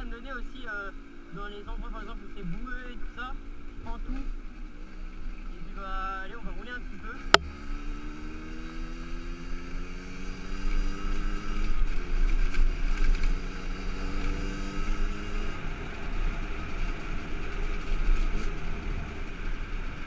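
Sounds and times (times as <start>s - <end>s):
motorcycle engine: 6.8s - 20.0s.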